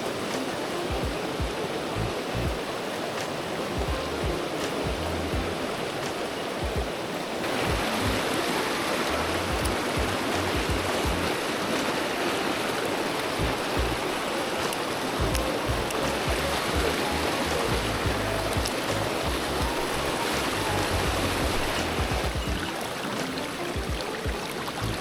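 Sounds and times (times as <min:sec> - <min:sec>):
stream rushing over rocks: 0:00.0 - 0:25.0.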